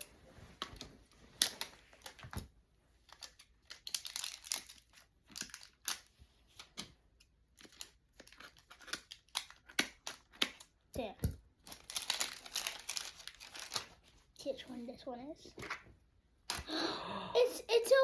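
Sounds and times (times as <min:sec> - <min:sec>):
packaging wrapper crinkling: 0:03.1 - 0:06.1, 0:11.6 - 0:14.0.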